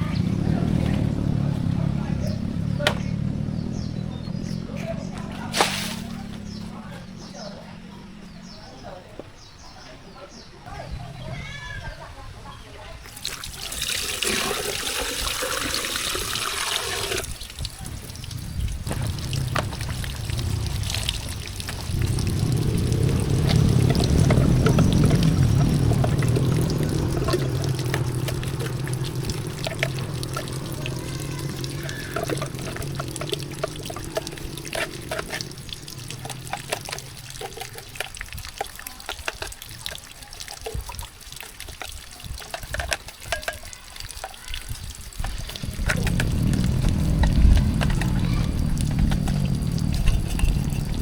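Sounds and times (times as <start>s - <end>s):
water pouring: 5.5s - 6.5s, 13.0s - 51.0s
scattered clicks and knocks: 18.9s - 44.4s.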